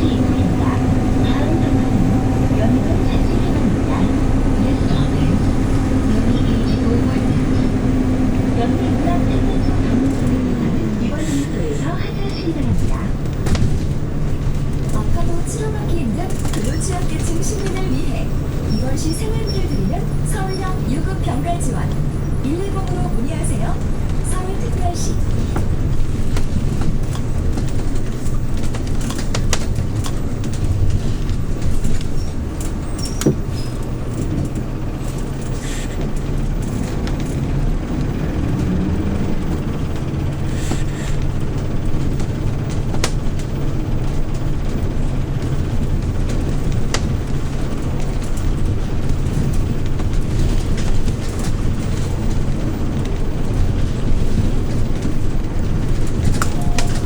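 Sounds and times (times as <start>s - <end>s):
bus engine humming: 0.0s - 57.0s
clicks and rattles: 21.7s - 57.0s.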